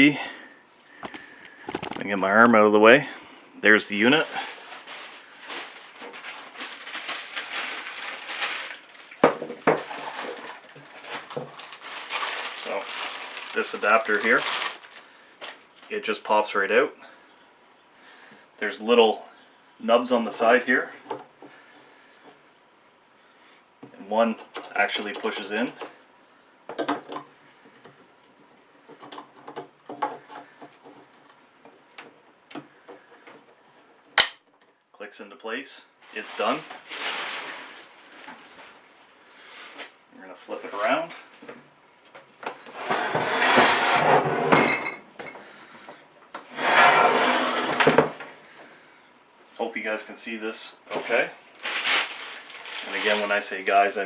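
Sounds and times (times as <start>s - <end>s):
packaging rustling and scraping: 4.2s - 15.9s, 36.0s - 39.0s, 42.6s - 45.0s, 46.4s - 48.3s, 50.9s - 53.8s.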